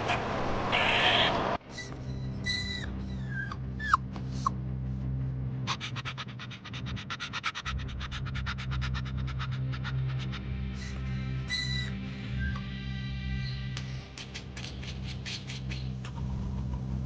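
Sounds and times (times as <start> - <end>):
squeaky animal chirps: 0.7 - 4.5, 8.6 - 12.7
steady low hum: 15.9 - 17.0.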